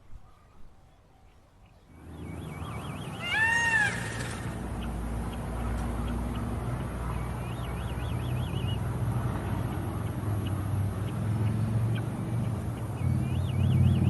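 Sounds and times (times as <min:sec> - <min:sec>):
high animal call: 0:02.8 - 0:04.6.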